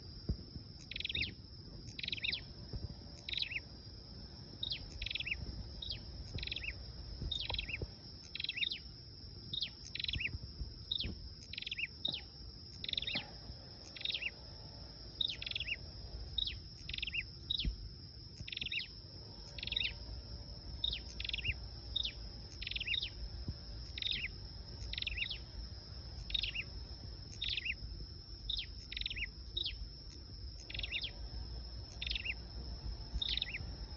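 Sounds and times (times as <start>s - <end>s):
bird call with falling notes: 33.2s - 33.7s.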